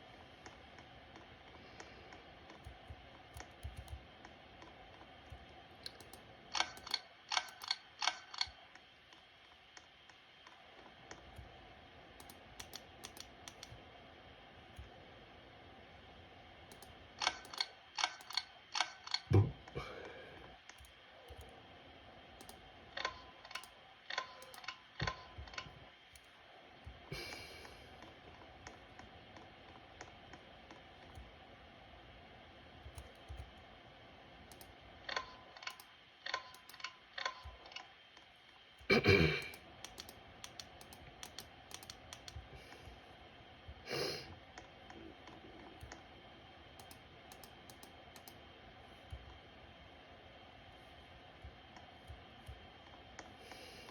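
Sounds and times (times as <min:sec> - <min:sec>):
ceiling fan hum: 0:00.0 - 0:53.9
ceiling fan ticking: 0:39.5 - 0:43.0.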